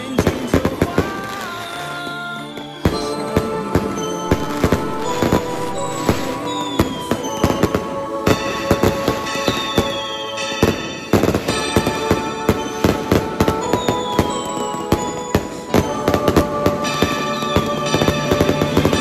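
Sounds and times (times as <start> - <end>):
fireworks bangs and crackles: 0.0 - 19.0
music: 0.0 - 19.0
falling whistles: 2.4 - 11.9.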